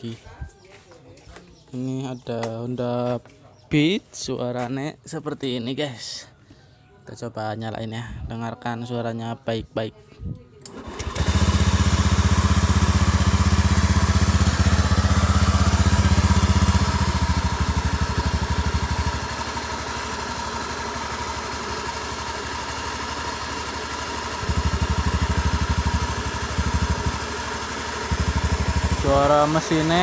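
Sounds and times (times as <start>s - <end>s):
scooter engine idling with rattle: 10.7s - 30.0s.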